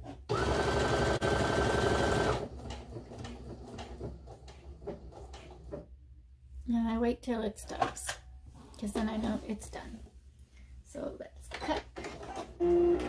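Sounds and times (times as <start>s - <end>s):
sewing machine stitching: 0.0s - 5.8s.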